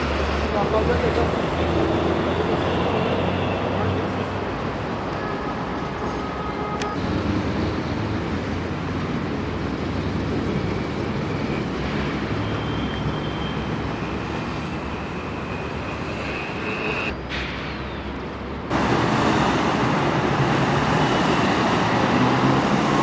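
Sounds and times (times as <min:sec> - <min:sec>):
road traffic rumble: 0:00.0 - 0:23.0
high whine of passing vehicle: 0:18.7 - 0:23.0.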